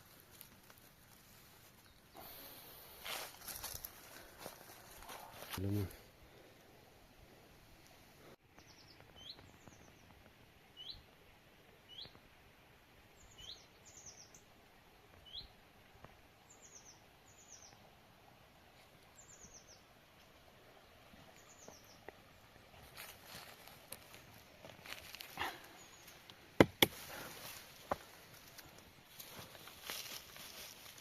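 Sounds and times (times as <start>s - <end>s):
quiet forest background: 0.0s - 31.0s
faint songbird calls: 13.2s - 14.5s.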